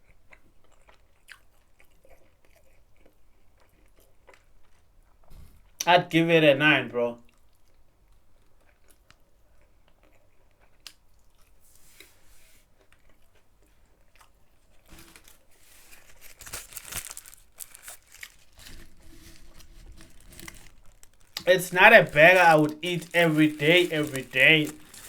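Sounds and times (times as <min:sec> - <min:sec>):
chewing food: 0:00.0 - 0:05.8, 0:07.2 - 0:25.0
paper wrapping rustling: 0:14.9 - 0:25.0.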